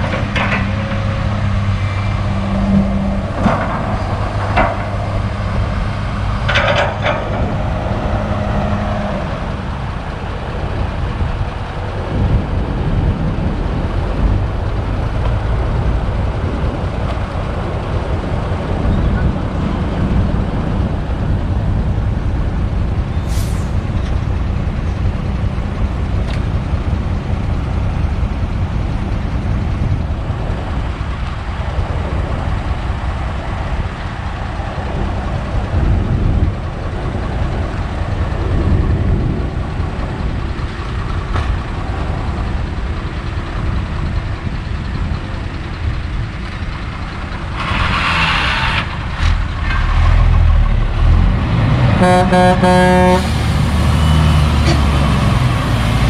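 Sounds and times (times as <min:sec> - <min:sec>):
excavator diesel engine under load: 0:00.0 - 0:56.0.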